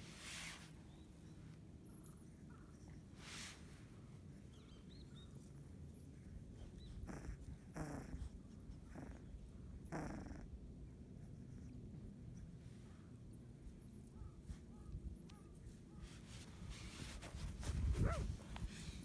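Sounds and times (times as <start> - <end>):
puppies breathing and snuffling: 0.0 - 19.0
steady low rumble: 6.3 - 19.0.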